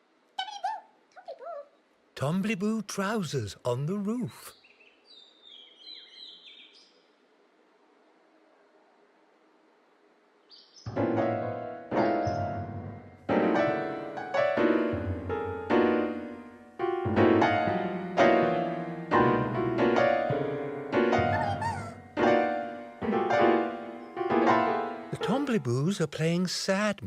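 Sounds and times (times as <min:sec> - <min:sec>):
slow sad piano music: 0:10.9 - 0:25.9.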